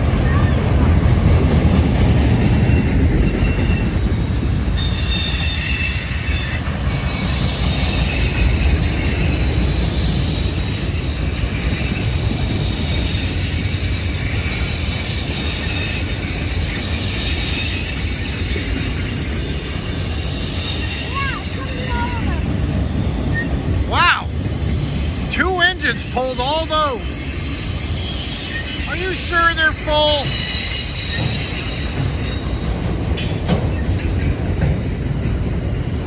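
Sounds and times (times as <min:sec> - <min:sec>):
freight train rumbling past: 0:00.0 - 0:36.0
high-pitched wheel squeals: 0:02.7 - 0:29.0, 0:30.2 - 0:32.9.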